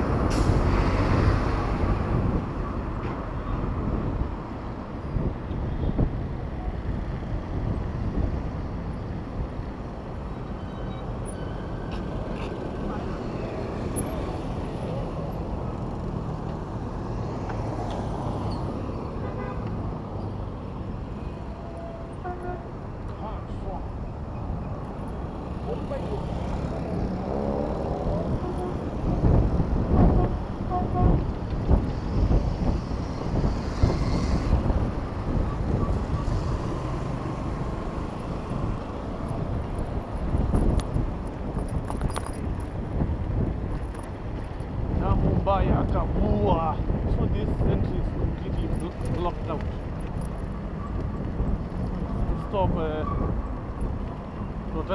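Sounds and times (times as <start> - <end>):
road traffic noise: 0.0 - 54.9
wind buffeting microphone: 0.0 - 54.9
car horn toot: 19.2 - 19.7, 22.2 - 22.8, 28.2 - 29.0, 29.9 - 31.3.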